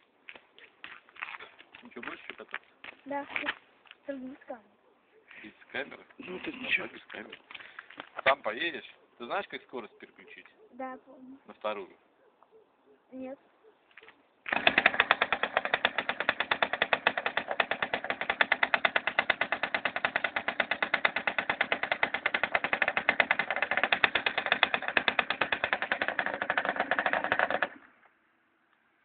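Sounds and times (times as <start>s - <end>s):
motorcycle engine idling: 14.5s - 27.9s.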